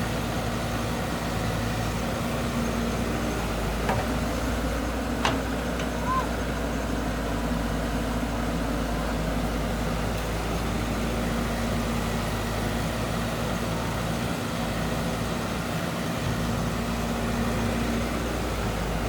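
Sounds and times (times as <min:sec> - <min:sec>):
diesel engine humming: 0:00.0 - 0:19.0.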